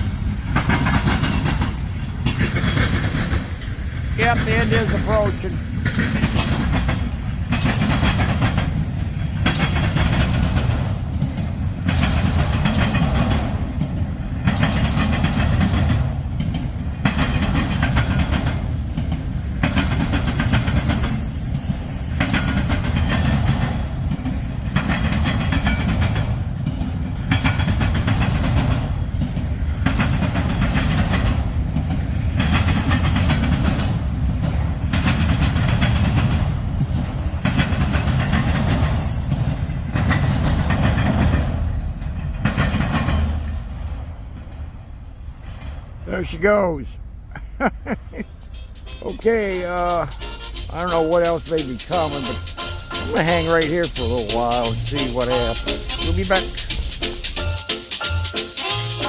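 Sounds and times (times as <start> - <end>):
wheels clattering over rail: 0.0 - 44.8
train wheels rumbling on rail: 0.0 - 57.6.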